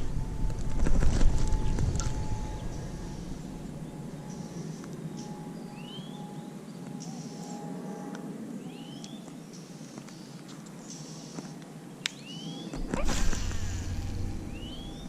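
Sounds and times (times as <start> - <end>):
low background noise: 0.0 - 15.0
bird calling: 12.1 - 15.0
high hiss: 12.8 - 15.0.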